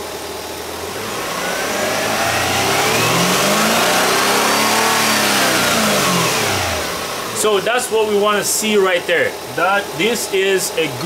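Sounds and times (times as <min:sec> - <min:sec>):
car engine revving: 0:00.7 - 0:08.4.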